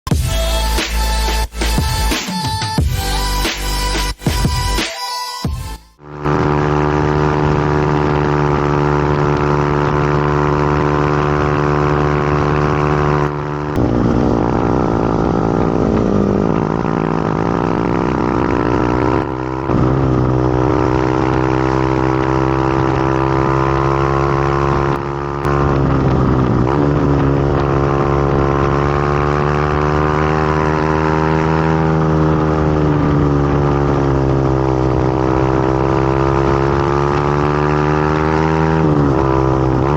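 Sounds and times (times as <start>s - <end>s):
motorcycle engine running: 5.9s - 39.9s.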